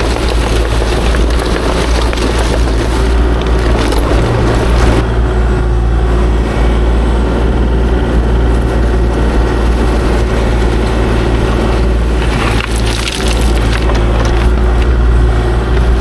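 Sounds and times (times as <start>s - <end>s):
gritty clatter: 0.0s - 5.2s, 8.1s - 16.0s
diesel engine running: 0.0s - 16.0s.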